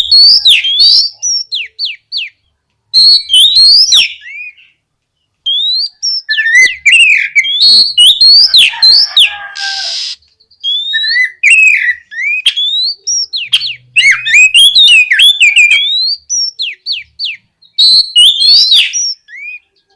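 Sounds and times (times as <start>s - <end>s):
bird singing whistled phrases: 0.0s - 2.4s, 3.0s - 4.8s, 5.4s - 19.9s
harsh hissing bird note: 9.5s - 10.2s.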